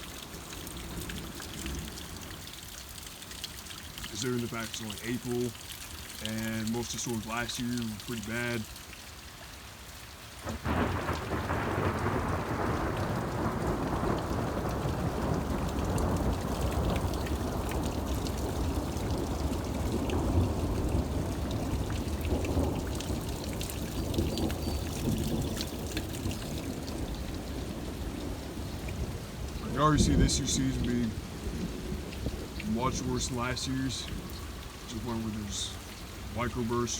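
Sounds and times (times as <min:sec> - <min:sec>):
heavy rain: 0:00.0 - 0:36.9
thunder rumbling: 0:10.4 - 0:36.8.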